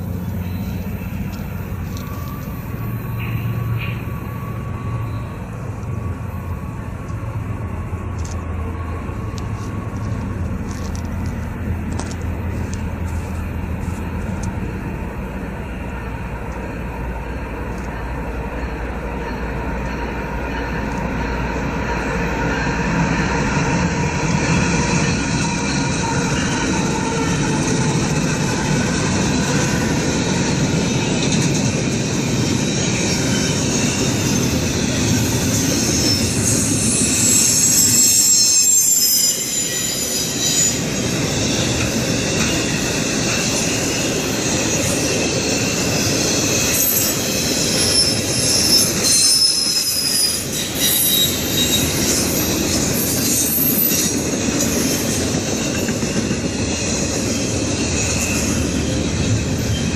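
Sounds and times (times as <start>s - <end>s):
freight train wheels rumbling: 0.0s - 59.9s
high-pitched wheel squeal: 0.2s - 6.8s, 32.2s - 59.9s.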